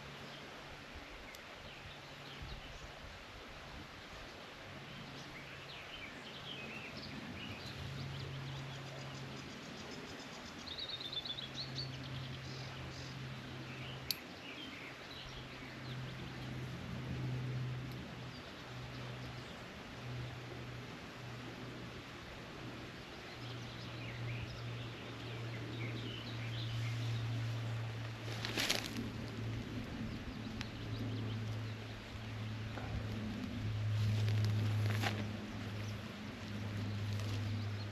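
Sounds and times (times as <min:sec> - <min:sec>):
low steady hum: 0:00.0 - 0:37.9
birds singing and chirping: 0:05.0 - 0:16.6, 0:23.0 - 0:37.9.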